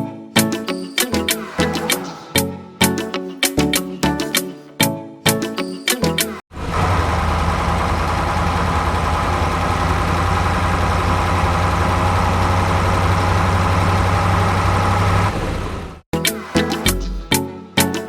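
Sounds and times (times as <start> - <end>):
music: 0.0 - 6.4, 16.1 - 18.0
engine running with deep hum: 6.6 - 16.0.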